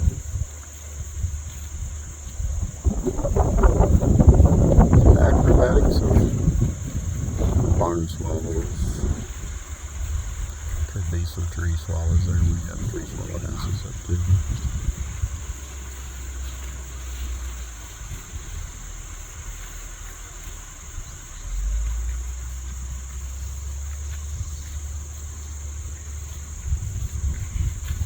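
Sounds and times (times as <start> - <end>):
low rumble: 0.0 - 19.4
insects trilling: 0.0 - 28.0.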